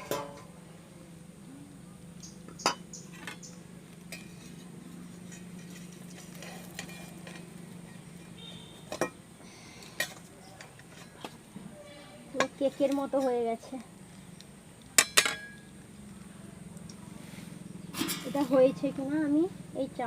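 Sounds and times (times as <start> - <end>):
metal pan lid and utensils clinking: 0.0 - 0.5, 4.1 - 9.2, 15.0 - 15.6.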